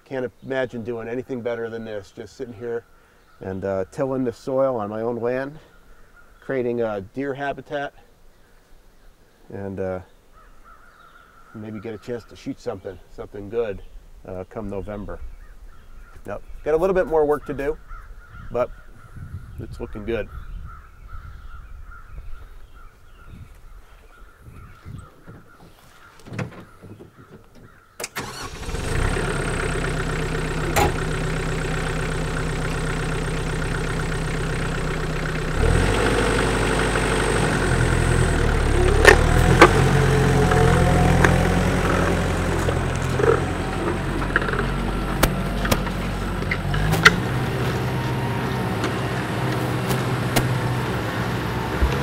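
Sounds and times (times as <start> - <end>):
tractor diesel engine: 28.0 - 52.0.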